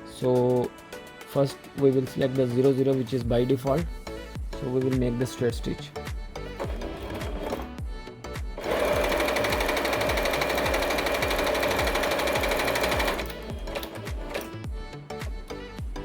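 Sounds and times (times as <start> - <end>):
background music: 0.0 - 16.0
sewing machine stitching: 6.5 - 7.8, 8.6 - 14.6.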